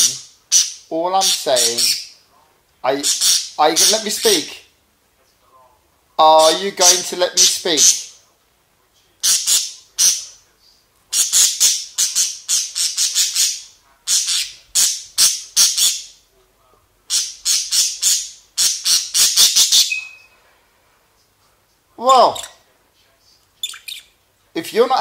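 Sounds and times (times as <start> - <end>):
budgerigar squawking: 0.0 - 2.1, 3.0 - 4.5, 11.1 - 16.1, 17.1 - 20.3.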